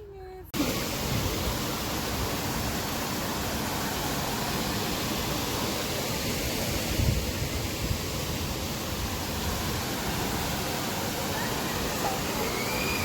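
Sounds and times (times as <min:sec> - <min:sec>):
waterfall roaring: 0:00.6 - 0:13.0.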